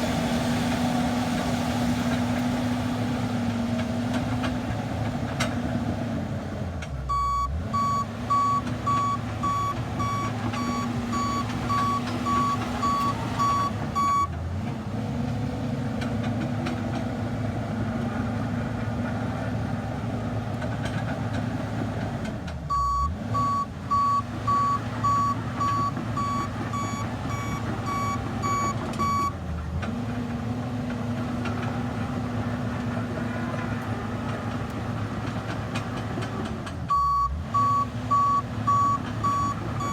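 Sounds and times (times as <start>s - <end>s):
bulldozer diesel engine: 0.0s - 39.9s
back-up alarm beeping: 7.1s - 14.3s, 22.7s - 29.3s, 36.9s - 39.9s.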